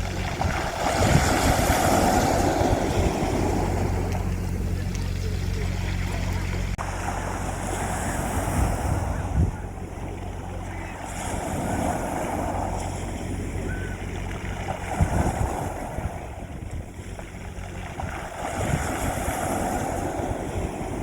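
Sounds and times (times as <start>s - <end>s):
sea waves washing onto beach: 0.0s - 21.0s
wind thumping on microphone: 0.0s - 21.0s.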